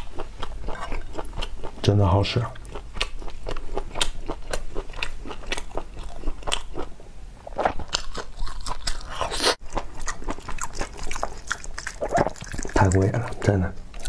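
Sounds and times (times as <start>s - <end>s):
wet chewing and mouth clicks: 2.6s - 6.9s, 7.5s - 14.0s.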